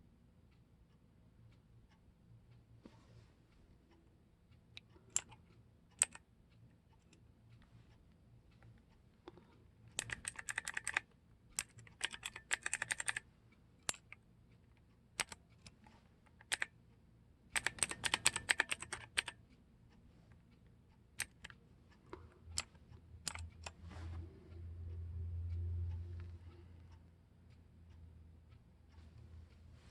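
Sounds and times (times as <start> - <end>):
mechanical keyboard clicks: 6.0 - 6.2, 9.9 - 14.2, 15.2 - 16.8, 17.5 - 19.4, 21.2 - 21.5, 22.6 - 23.8.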